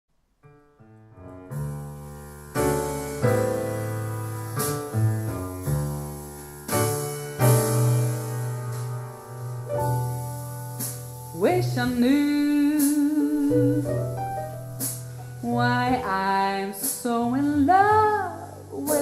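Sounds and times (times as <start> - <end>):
piano chords: 0.4 - 19.0
bass line: 1.3 - 16.5.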